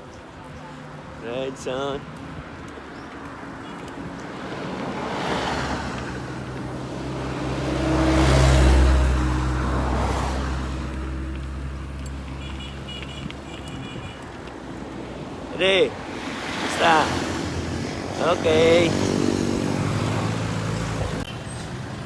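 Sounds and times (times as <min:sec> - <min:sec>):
lighter vehicles passing: 0:01.2 - 0:13.6, 0:14.4 - 0:22.0
vehicle engine drone passing: 0:04.4 - 0:12.4, 0:16.3 - 0:21.2.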